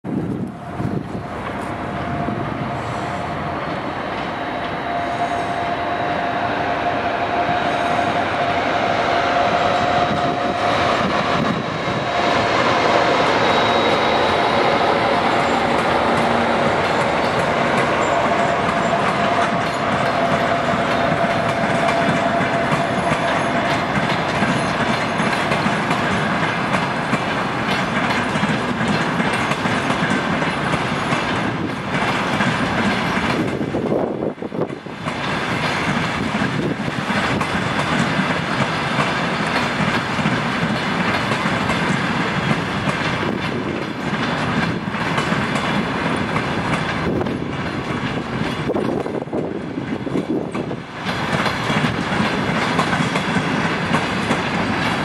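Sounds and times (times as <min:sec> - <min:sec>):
steel wheels on rails: 0:00.0 - 0:55.0.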